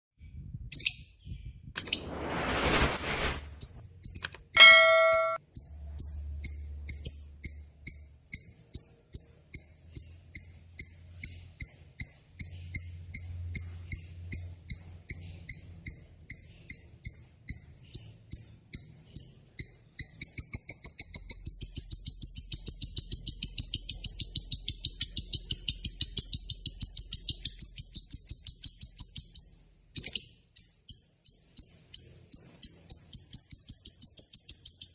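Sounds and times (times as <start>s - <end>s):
brief rushing noise: 1.8s - 3.6s
short steady tone: 4.6s - 5.4s.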